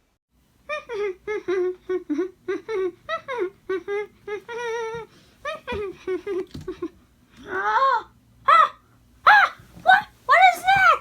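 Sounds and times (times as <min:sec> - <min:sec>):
high-pitched voice humming: 0:00.6 - 0:06.1.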